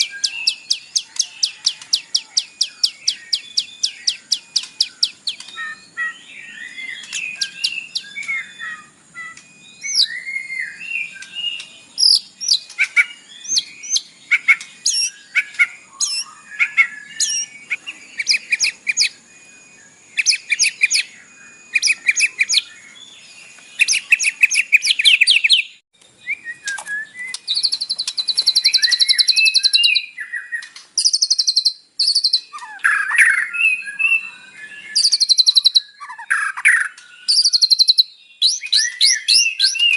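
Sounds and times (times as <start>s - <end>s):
songbird singing varied song: 0.0s - 39.9s.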